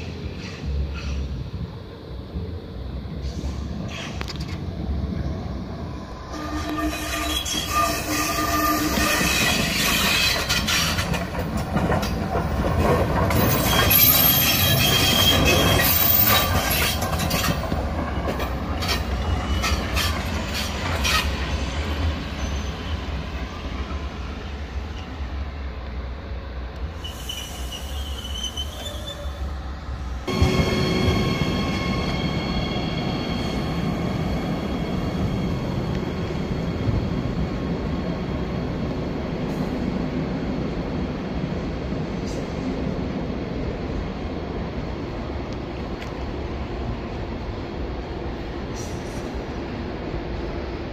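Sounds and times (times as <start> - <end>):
train wheels squealing: 0.0 - 1.4, 3.2 - 4.4, 6.3 - 11.2, 13.3 - 25.2, 26.9 - 38.4
train low rumble: 0.0 - 50.9
rail clatter: 6.5 - 22.1.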